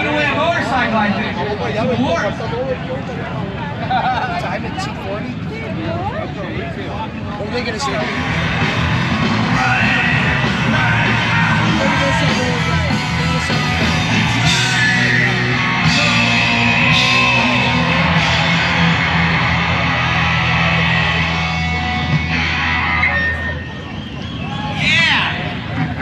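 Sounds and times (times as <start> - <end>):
rock music with shouted singing: 7.8 - 26.0
heavy bass line: 7.9 - 23.8.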